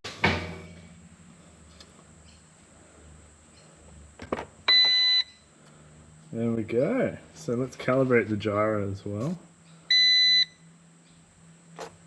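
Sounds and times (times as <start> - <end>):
electronic beep: 4.7 - 5.4, 9.9 - 10.6.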